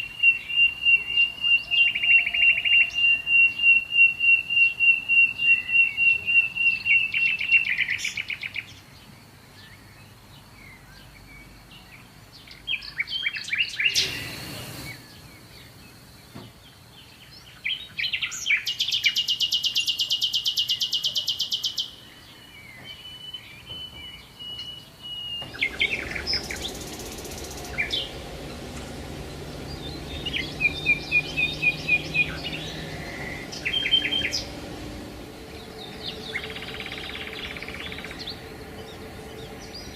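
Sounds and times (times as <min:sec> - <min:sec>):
songbirds singing and calling: 0:00.0 - 0:39.9
burst of noise: 0:25.4 - 0:39.9.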